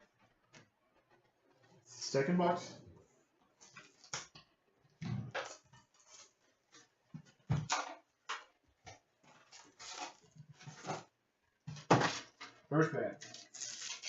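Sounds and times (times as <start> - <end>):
plastic wrap crinkling and tearing: 5.4 - 6.9, 9.3 - 11.1, 13.2 - 14.0
cardboard rustling: 9.2 - 11.1.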